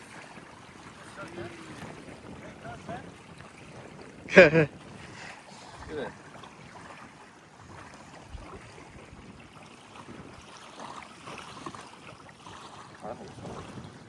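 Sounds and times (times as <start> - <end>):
water lapping: 0.0 - 14.0
wind: 0.0 - 14.0.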